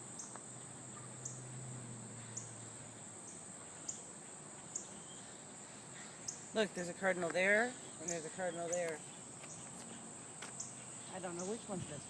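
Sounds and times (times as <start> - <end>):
high-pitched insect chorus: 0.0 - 12.0
bird chip calls: 3.2 - 10.0.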